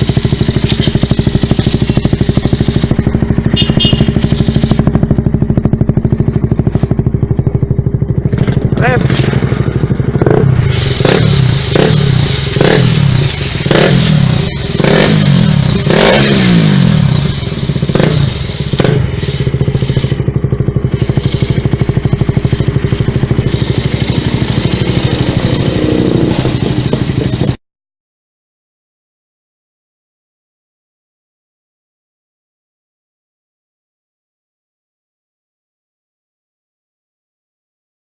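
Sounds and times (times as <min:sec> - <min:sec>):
motorcycle engine idling: 0:00.0 - 0:27.6
motorcycle engine revving: 0:00.0 - 0:27.6.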